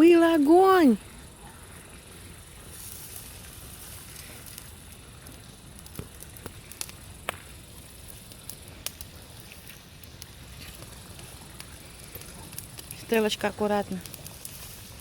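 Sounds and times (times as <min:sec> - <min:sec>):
burning wood popping: 0:00.0 - 0:15.0
campfire crackling: 0:00.0 - 0:15.0.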